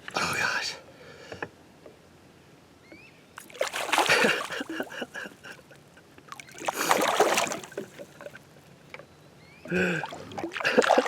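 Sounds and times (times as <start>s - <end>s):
water splashing: 3.4s - 5.3s, 6.3s - 8.4s, 9.7s - 11.0s.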